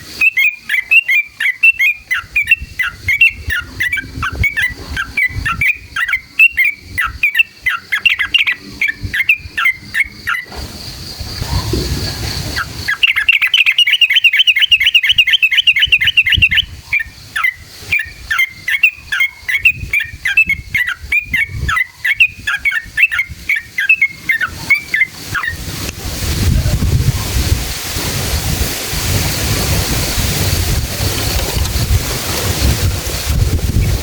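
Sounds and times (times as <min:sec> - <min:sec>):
bird trilling and chirping: 0:00.2 - 0:10.5, 0:12.5 - 0:25.8.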